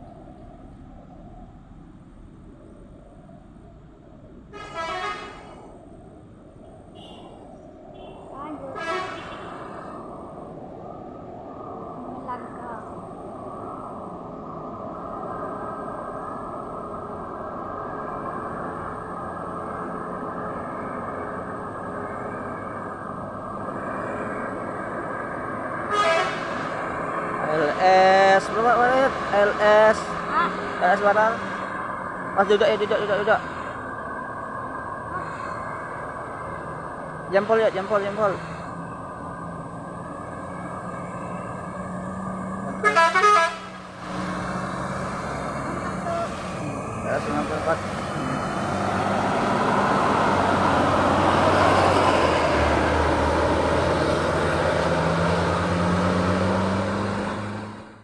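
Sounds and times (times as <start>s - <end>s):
heavy vehicle engine climbing: 0.0s - 4.5s, 38.2s - 58.0s
loud pitched horn blast: 4.5s - 5.6s, 8.0s - 9.6s, 25.9s - 26.7s, 42.7s - 44.4s
truck diesel engine rumbling: 11.8s - 58.0s.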